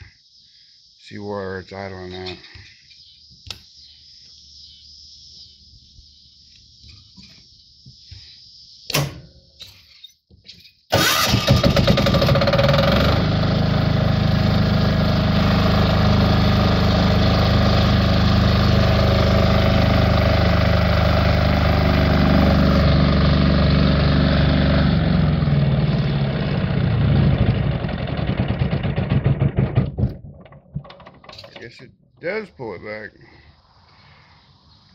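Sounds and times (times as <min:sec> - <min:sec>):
diesel generator engine running: 0:10.9 - 0:29.8.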